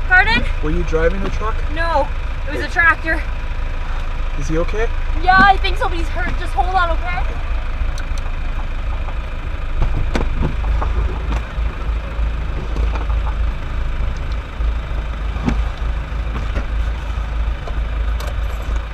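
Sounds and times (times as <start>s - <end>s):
vehicle engine idling: 0.0s - 18.9s
faint clicks and knocks: 12.6s - 14.4s.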